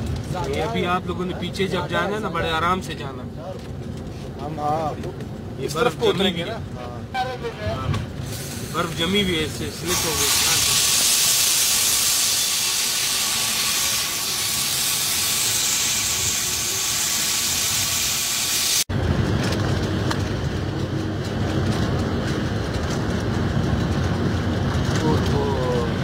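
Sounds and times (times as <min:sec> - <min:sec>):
diesel locomotive rumble: 0:00.0 - 0:26.0
air rushing past train: 0:07.7 - 0:26.0.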